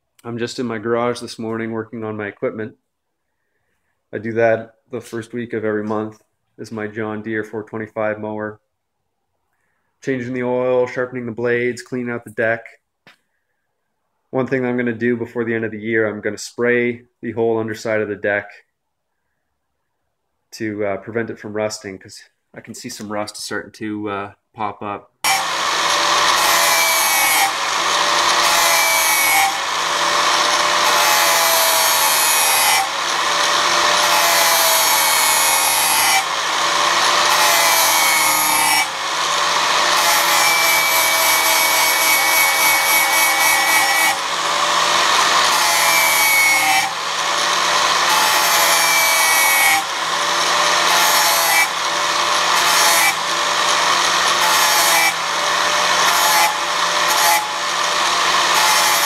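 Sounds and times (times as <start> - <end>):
sanding disc grinding steel blade: 25.3 - 59.0.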